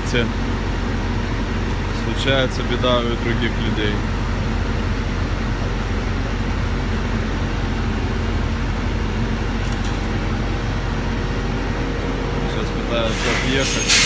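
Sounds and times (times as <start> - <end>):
diesel truck engine idling: 0.0 - 14.0
fan-like hiss: 12.3 - 14.0.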